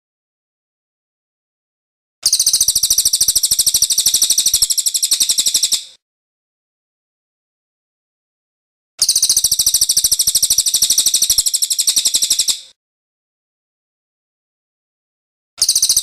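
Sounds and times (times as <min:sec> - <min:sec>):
bird trilling: 0:02.2 - 0:05.9, 0:09.0 - 0:12.7.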